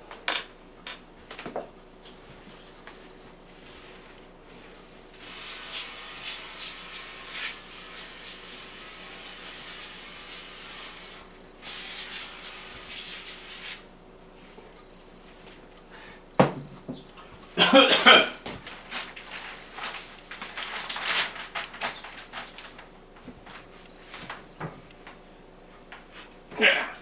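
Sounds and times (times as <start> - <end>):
rough hissing cleaning noise: 5.2 - 13.9.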